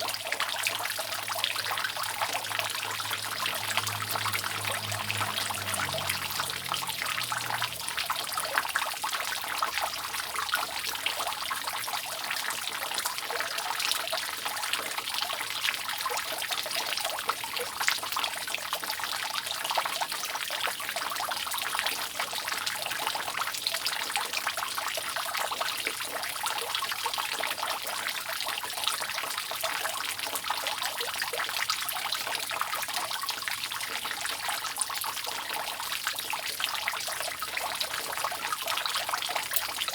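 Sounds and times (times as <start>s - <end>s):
rainwater dripping off roof: 0.0s - 39.9s.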